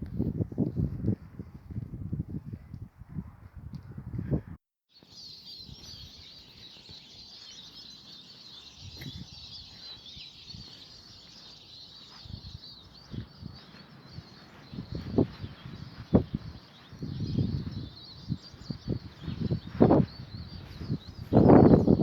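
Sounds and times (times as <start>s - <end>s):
wind buffeting microphone: 0.0s - 4.6s, 5.6s - 22.0s
small birds chirping: 4.9s - 22.0s.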